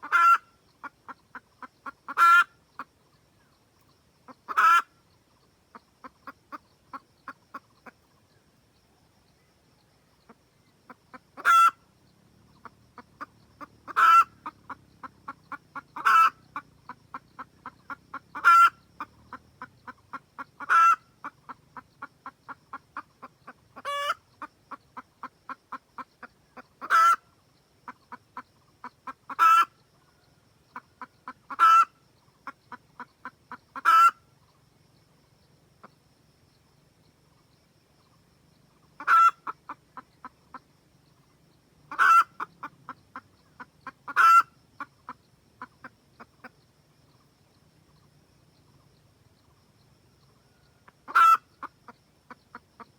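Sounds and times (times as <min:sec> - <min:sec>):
hen cackling and squawking: 0:00.0 - 0:02.9, 0:04.3 - 0:05.0, 0:10.3 - 0:11.9, 0:12.5 - 0:34.3, 0:38.8 - 0:40.7, 0:41.9 - 0:46.6, 0:50.8 - 0:52.9.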